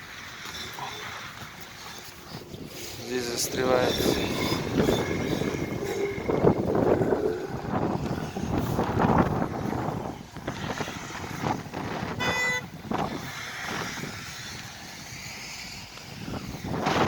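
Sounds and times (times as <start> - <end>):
traffic engines rumbling: 0.0 - 17.0
wind: 0.0 - 17.0
car horn honk: 12.1 - 12.7.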